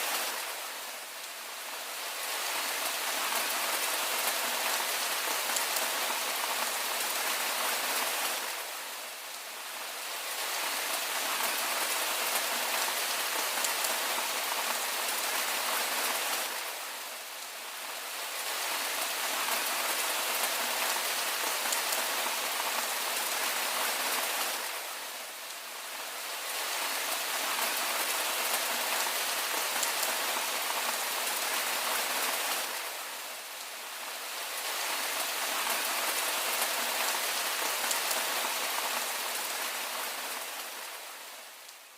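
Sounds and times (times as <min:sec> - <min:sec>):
rain falling on a surface: 0:00.0 - 0:41.9.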